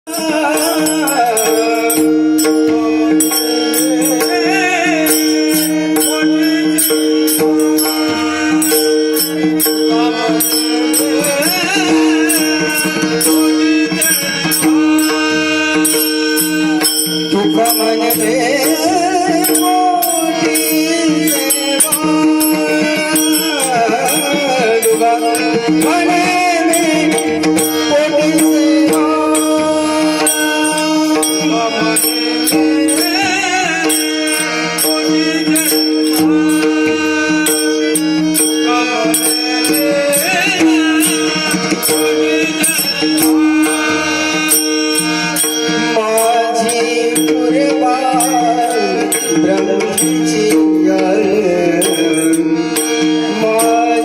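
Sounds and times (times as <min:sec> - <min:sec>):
small hand cymbals: 0:00.1 - 0:50.8, 0:51.8 - 0:54.0
wavering melodic line: 0:00.1 - 0:54.0.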